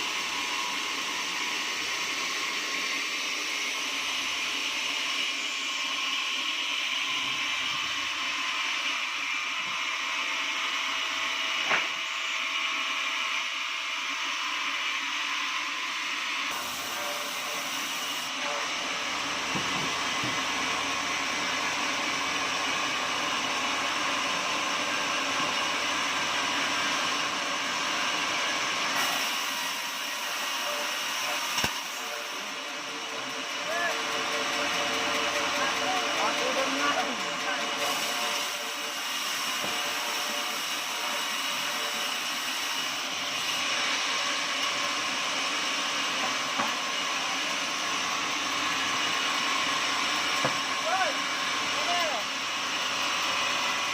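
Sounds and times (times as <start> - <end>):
sawmill machinery whirring: 0.0 - 53.9.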